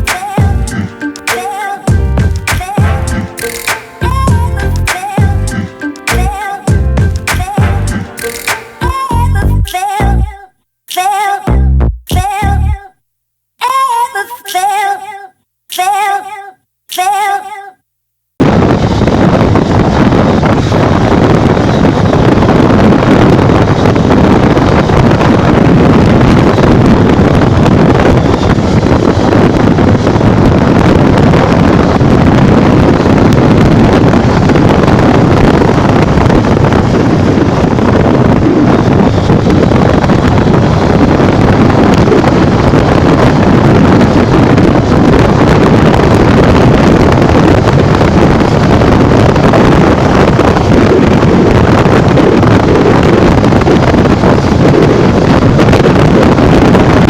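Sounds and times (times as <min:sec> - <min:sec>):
wind buffeting microphone: 0:18.4 - 0:57.0.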